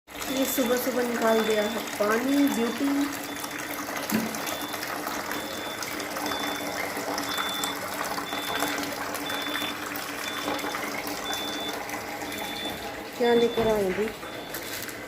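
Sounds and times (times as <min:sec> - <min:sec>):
electric pump motor hum: 0:00.1 - 0:15.0
water gushing from a pipe: 0:00.1 - 0:15.0
short high beeps: 0:12.3 - 0:14.7.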